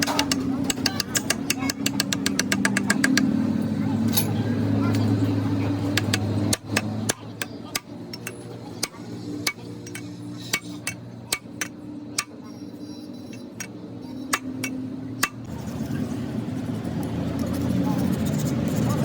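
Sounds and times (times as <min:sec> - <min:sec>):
metal tools tapping metal: 0:00.0 - 0:03.3, 0:05.9 - 0:15.5.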